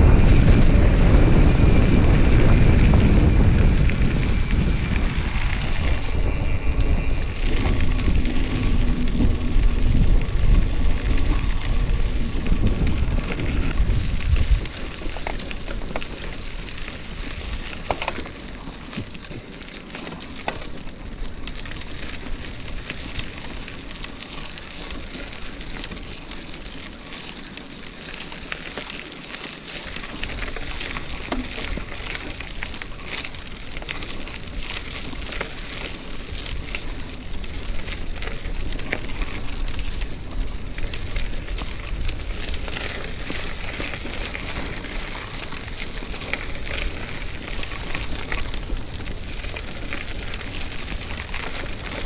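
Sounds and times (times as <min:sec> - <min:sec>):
wind buffeting microphone: 0:00.0 - 0:19.7, 0:29.9 - 0:52.0
bicycle tyres on gravel: 0:00.0 - 0:52.0.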